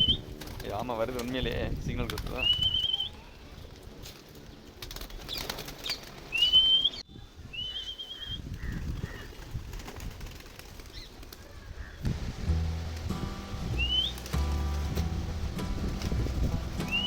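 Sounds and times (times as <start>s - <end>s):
pigeons flapping wings: 0.0s - 6.9s, 8.5s - 13.1s, 13.8s - 17.0s
warbling whistle: 13.8s - 14.2s.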